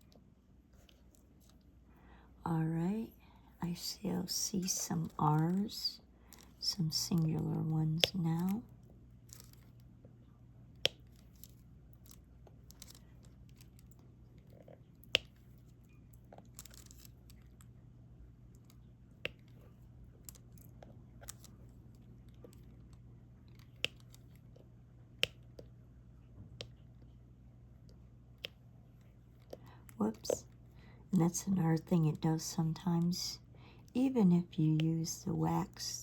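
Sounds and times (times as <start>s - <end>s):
faint low hum: 0.0s - 36.0s
stylus clicks and taps: 7.2s - 8.6s.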